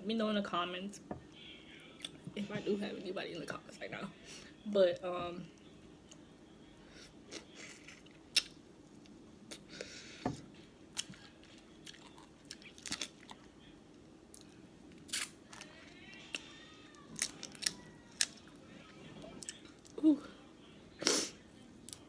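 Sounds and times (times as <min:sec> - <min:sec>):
chewing and shells cracking: 0:10.9 - 0:13.5, 0:14.3 - 0:18.6, 0:19.4 - 0:20.0.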